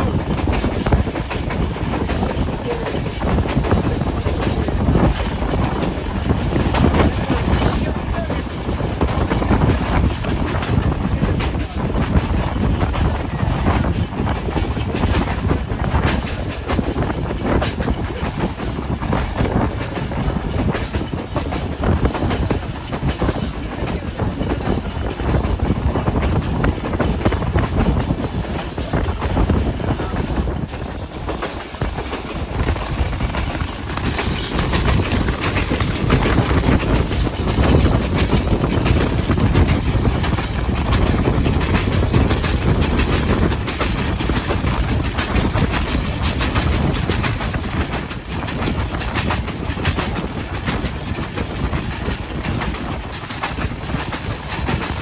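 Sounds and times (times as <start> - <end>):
train rumble: 0.0 - 55.0
wheels clattering over rail joints: 0.0 - 55.0.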